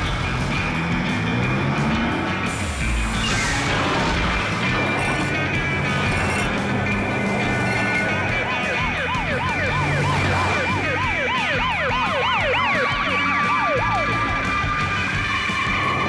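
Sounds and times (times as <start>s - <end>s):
background music: 0.0s - 16.0s
fast warbling siren: 7.6s - 16.0s.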